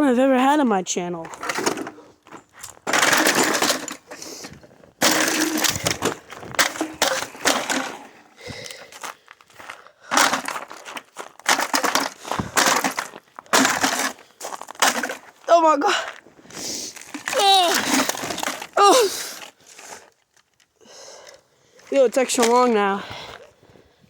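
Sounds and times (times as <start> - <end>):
appliance parts smashing: 2.8 - 4.2, 5.0 - 8.1, 10.1 - 15.3, 17.1 - 18.9.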